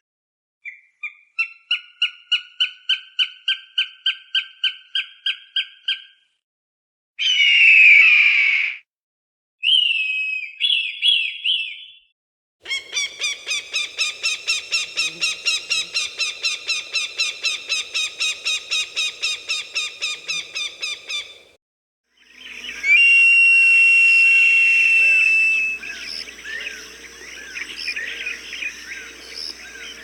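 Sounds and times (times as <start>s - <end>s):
hawk calls: 12.7s - 21.5s, 24.2s - 30.0s.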